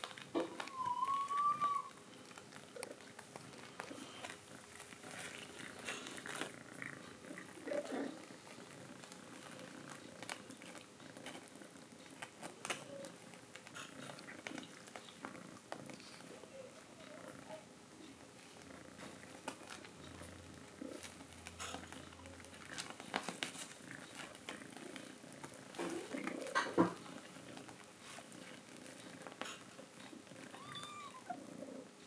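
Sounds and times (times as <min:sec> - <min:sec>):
cat purring: 0:00.0 - 0:32.0
cat chirping: 0:00.4 - 0:02.0, 0:30.5 - 0:31.4.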